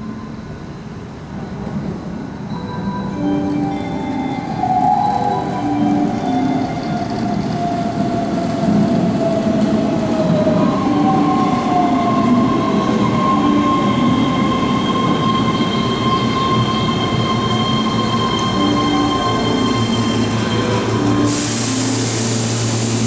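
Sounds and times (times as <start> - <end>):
electric train whine: 0.0 - 23.0
train running rumble: 7.0 - 23.0
high squeal: 10.3 - 23.0.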